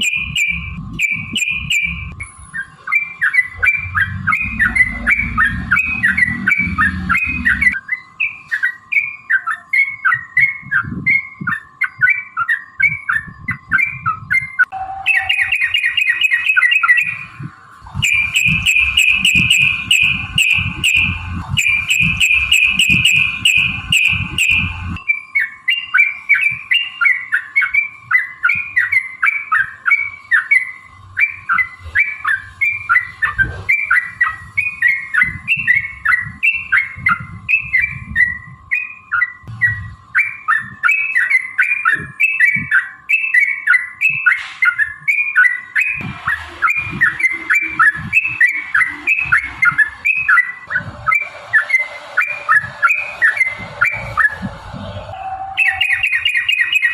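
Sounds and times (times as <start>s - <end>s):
bulbul chattering song: 0.0s - 56.9s
low thumps: 17.8s - 25.0s.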